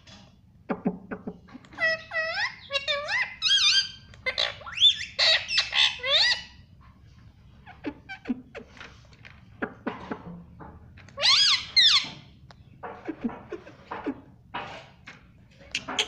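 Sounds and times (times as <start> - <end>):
parakeet clicks and chatter: 1.5 - 6.5, 15.5 - 16.0
parakeet screeches: 1.8 - 6.6, 11.2 - 12.3.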